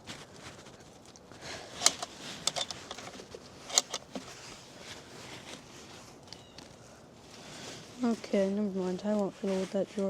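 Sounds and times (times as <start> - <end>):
locked drawer rattling: 1.8 - 3.1, 3.7 - 4.1.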